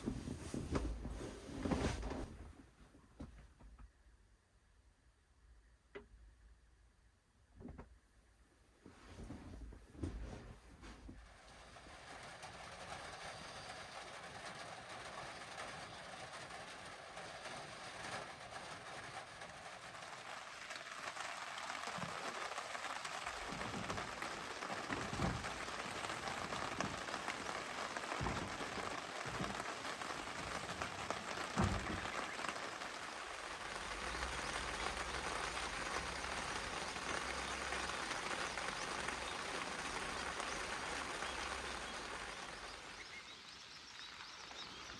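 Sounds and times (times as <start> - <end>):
rain falling: 9.0 - 44.9.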